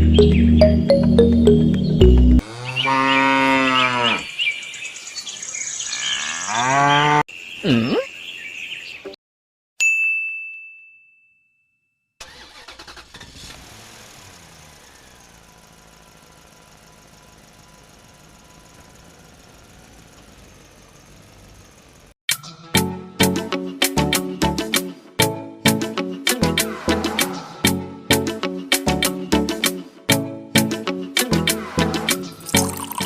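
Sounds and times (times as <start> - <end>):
cow mooing: 2.4 - 4.3, 5.8 - 7.2
high bell-like ding: 9.8 - 11.9
faint engine running: 12.2 - 22.2.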